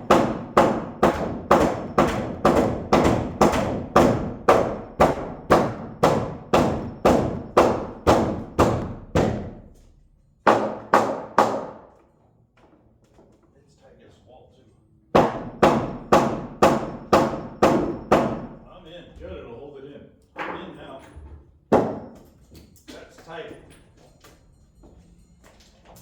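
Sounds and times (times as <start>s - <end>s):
hammer blows on wood: 0.0s - 9.8s, 15.2s - 18.6s.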